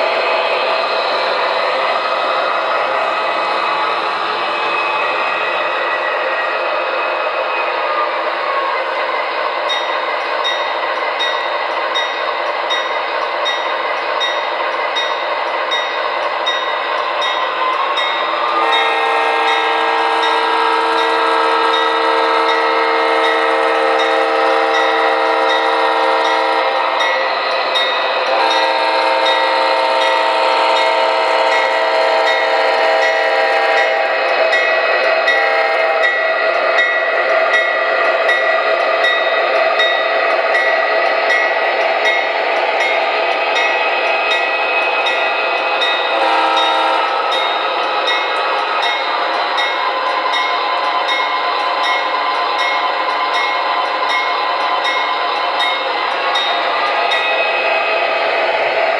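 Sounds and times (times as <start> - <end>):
model locomotive running noise: 0.0 - 58.9
model locomotive horn blasts: 18.5 - 27.2, 28.2 - 34.2, 35.3 - 36.2, 46.1 - 47.4.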